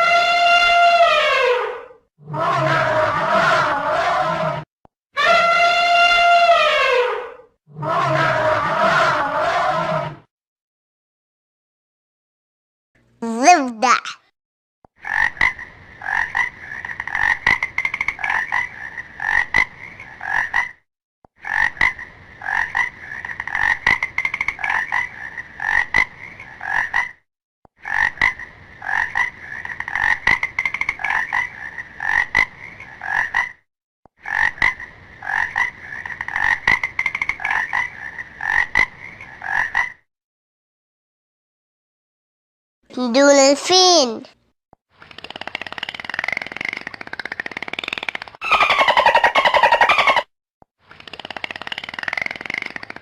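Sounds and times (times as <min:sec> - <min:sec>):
frog croaking: 0:15.0 - 0:20.8, 0:21.4 - 0:27.2, 0:27.8 - 0:33.6, 0:34.2 - 0:40.0.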